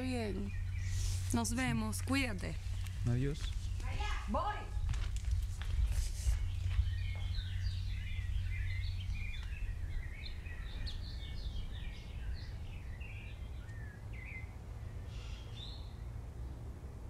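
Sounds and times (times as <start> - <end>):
birds chirping and trilling: 0.0 - 16.7
low outdoor rumble: 0.0 - 17.0.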